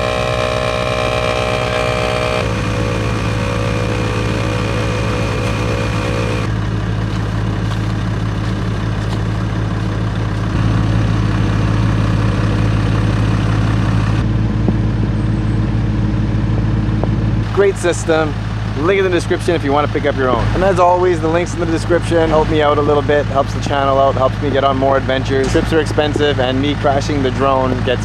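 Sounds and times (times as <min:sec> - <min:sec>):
air compressor motor hum: 0:00.0 - 0:14.3.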